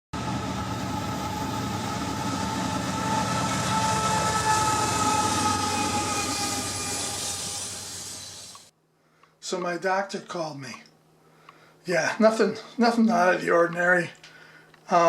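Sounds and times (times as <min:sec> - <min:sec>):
train rumbling on rails: 0:00.2 - 0:08.7.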